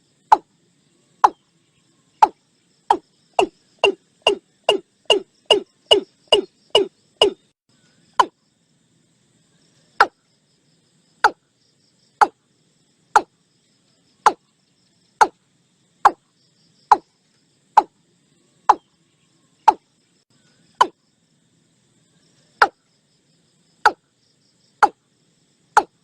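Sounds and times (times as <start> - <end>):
bird calling hollow notes: 0.3 - 0.5, 1.2 - 1.4, 2.2 - 7.5, 8.1 - 8.4, 13.2 - 13.4, 14.2 - 14.5, 16.8 - 17.1, 17.8 - 18.0, 18.6 - 18.9, 19.6 - 19.9, 20.7 - 21.0, 23.8 - 24.0, 25.8 - 26.0.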